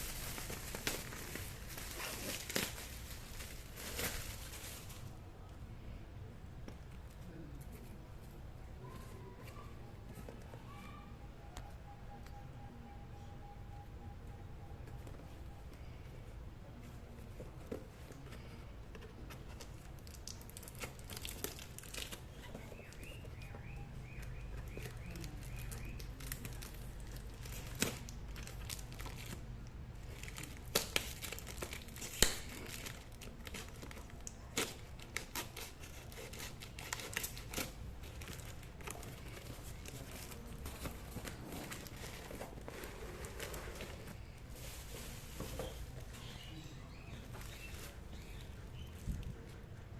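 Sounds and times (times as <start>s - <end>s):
wrapping tearing and crinkling: 0.0s - 5.2s, 19.5s - 23.1s, 24.5s - 45.8s.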